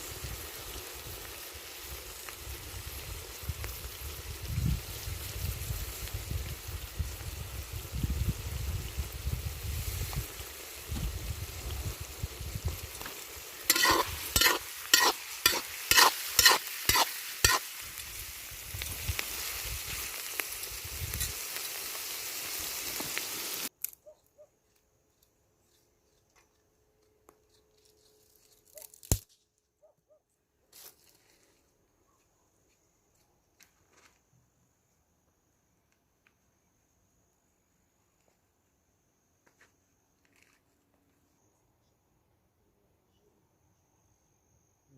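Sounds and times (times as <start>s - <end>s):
food sizzling in a pan: 0.0s - 23.7s
quick stirring scrapes: 13.7s - 17.7s.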